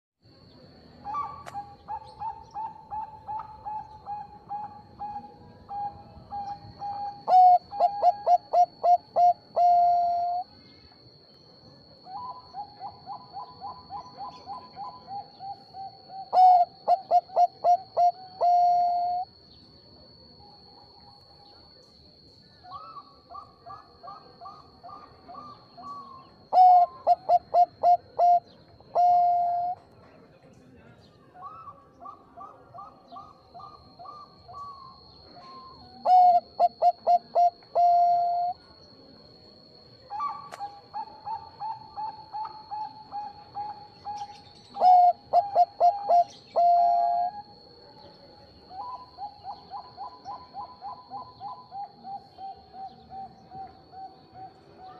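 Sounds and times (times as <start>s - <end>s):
dove cooing: 1.0s - 10.5s, 12.0s - 19.4s, 22.7s - 29.8s, 31.4s - 38.6s, 40.1s - 47.6s, 48.6s - 54.9s.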